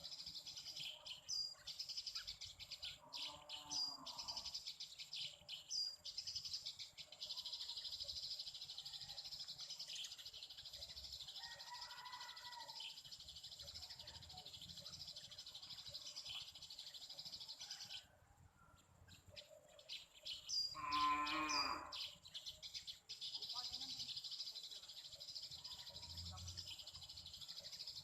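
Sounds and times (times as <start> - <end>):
high bird chirps: 19.1 - 28.0
wavering animal call: 20.8 - 22.0.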